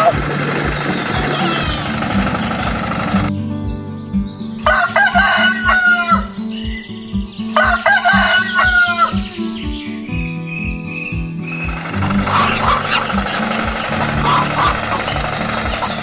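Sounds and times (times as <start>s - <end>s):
background music with steady beat: 0.0s - 16.0s
rooster crowing: 4.6s - 6.4s, 7.6s - 9.3s.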